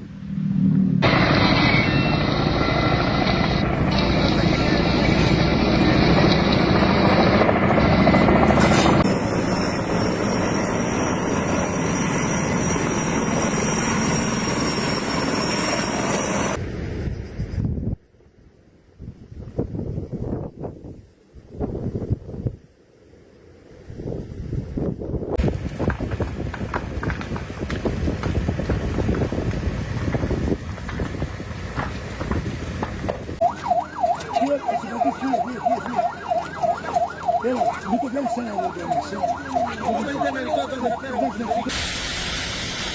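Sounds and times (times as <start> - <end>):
steady high whine: 0.0 - 17.5
lower-pitched siren: 0.3 - 16.6, 33.4 - 41.8
helicopter rotor and engine: 0.4 - 16.8, 25.4 - 42.8
emergency siren wailing fast: 1.0 - 16.6, 33.4 - 41.8
rough crackly noise: 25.4 - 33.4.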